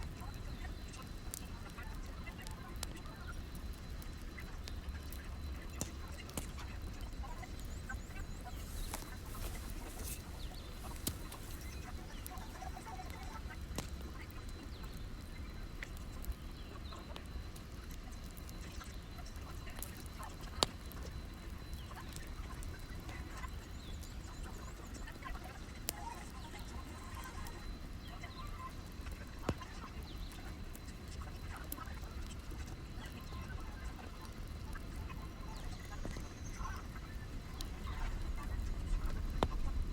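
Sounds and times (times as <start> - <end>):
wood fire crackling: 0.0 - 39.9
faint squeaks: 7.2 - 13.2.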